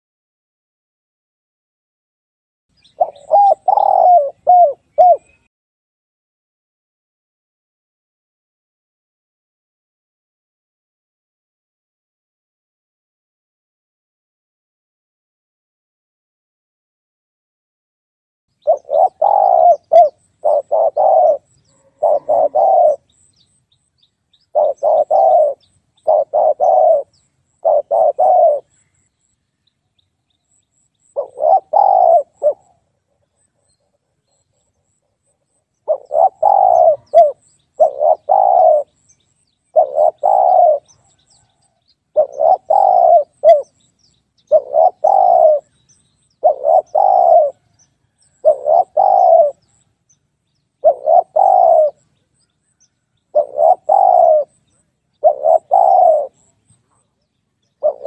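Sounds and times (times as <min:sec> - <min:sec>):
dove cooing: 0:02.8 - 0:05.5, 0:18.6 - 0:23.5, 0:24.4 - 0:28.8, 0:31.1 - 0:34.2, 0:35.8 - 0:39.0, 0:39.7 - 0:43.8, 0:44.4 - 0:45.8, 0:46.4 - 0:49.8, 0:50.8 - 0:52.1, 0:53.2 - 0:57.0, 0:57.8 - 0:58.0.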